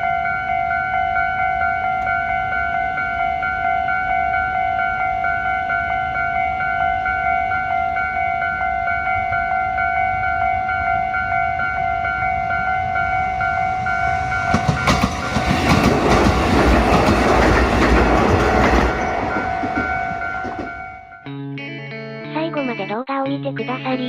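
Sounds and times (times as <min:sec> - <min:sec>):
level crossing bell ringing: 0:00.0 - 0:15.3
train wheels clicking over rail joints: 0:14.2 - 0:20.8.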